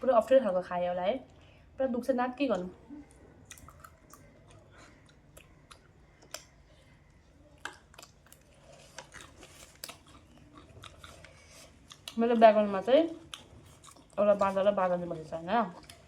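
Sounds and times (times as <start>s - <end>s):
chewing puffed rice: 2.5s - 16.0s.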